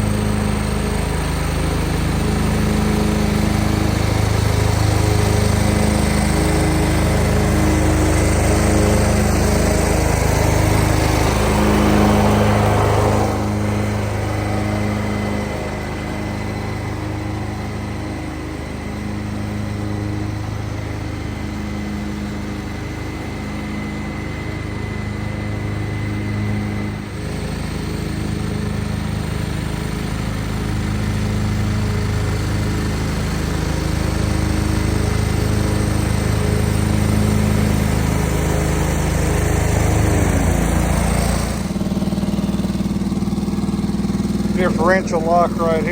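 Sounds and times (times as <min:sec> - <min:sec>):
garden tractor engine running: 0:00.0 - 0:45.9.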